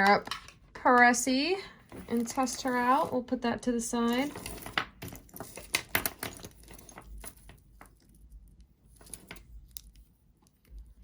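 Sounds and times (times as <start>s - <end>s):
jewelry clicking and tapping: 0.0s - 1.2s, 4.1s - 10.9s.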